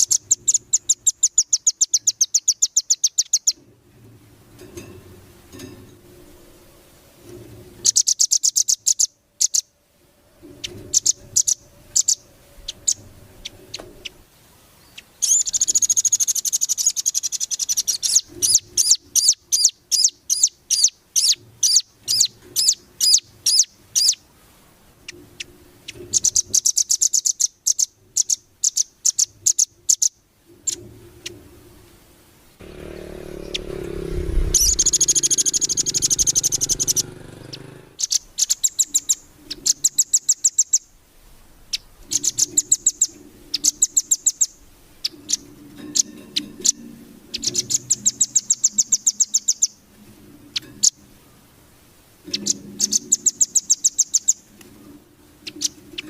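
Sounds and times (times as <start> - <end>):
songbird chirping and trilling: 0.0 - 3.6, 7.8 - 24.3, 25.0 - 31.4, 32.5 - 41.0, 41.7 - 51.2, 52.2 - 54.6, 55.4 - 56.0
low rumbling noise: 9.8 - 15.0, 30.4 - 38.0.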